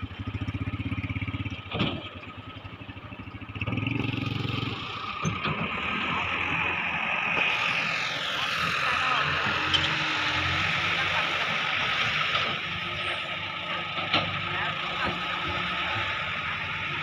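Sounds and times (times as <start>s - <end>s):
excavator diesel engine pulsing: 0.0s - 17.0s
steady high whine: 4.3s - 17.0s.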